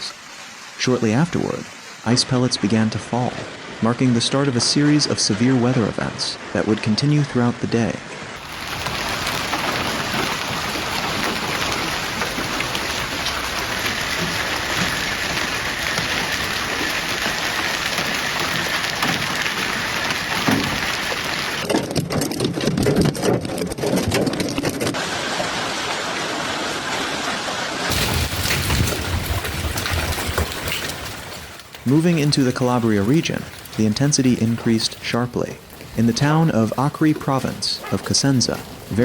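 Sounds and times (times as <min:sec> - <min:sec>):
ice pellets clattering: 0:08.4 - 0:21.7, 0:27.9 - 0:37.4
heavy rain and ice pellets: 0:08.4 - 0:23.1, 0:23.8 - 0:39.0.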